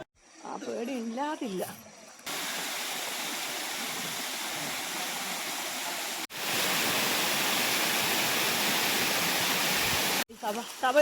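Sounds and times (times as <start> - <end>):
waterfall rushing: 2.3 - 10.2.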